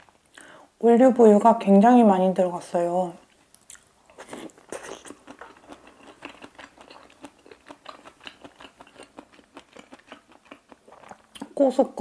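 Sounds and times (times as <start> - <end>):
person chewing food: 3.5 - 11.6.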